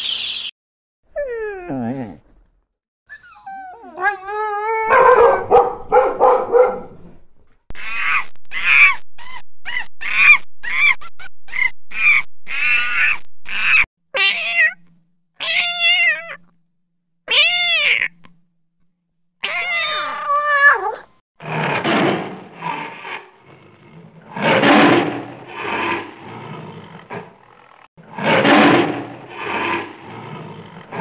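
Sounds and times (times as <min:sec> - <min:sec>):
dogs whining and barking: 0:01.1 - 0:13.9
monkey calls: 0:07.9 - 0:13.8
kittens meowing: 0:07.9 - 0:16.5, 0:17.3 - 0:18.3, 0:19.4 - 0:21.0.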